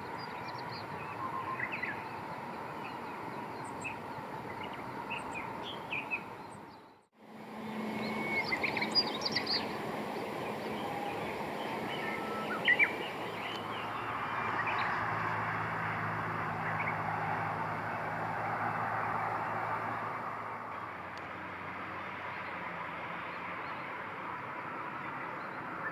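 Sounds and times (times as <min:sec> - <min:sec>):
small birds chirping: 0:00.0 - 0:18.2
steady outdoor background: 0:00.0 - 0:25.9.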